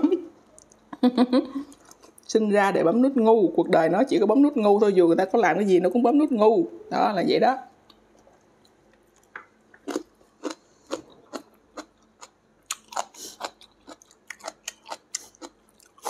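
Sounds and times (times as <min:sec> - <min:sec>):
person chewing food: 0:01.6 - 0:02.3, 0:07.8 - 0:16.0.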